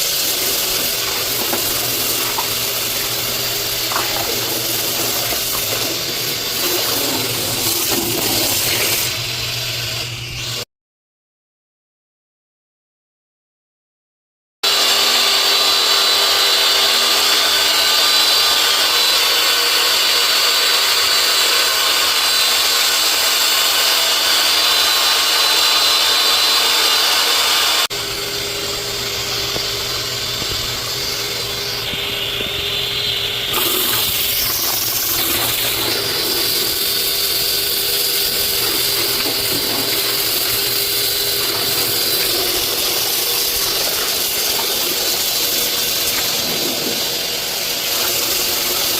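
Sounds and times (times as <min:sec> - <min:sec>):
small motor whirring: 0:15.8 - 0:48.9.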